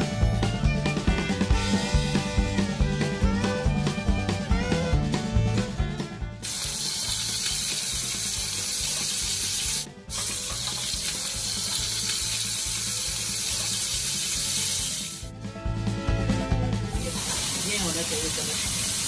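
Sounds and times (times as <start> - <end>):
oil sizzling in a pan: 6.4 - 15.3, 17.0 - 19.0.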